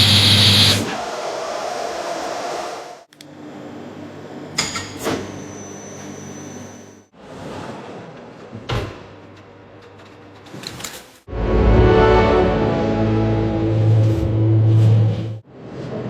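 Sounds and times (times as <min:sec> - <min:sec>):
hissing machine: 0:00.0 - 0:00.9
machinery humming: 0:00.0 - 0:00.9
thin high whine: 0:00.0 - 0:00.9.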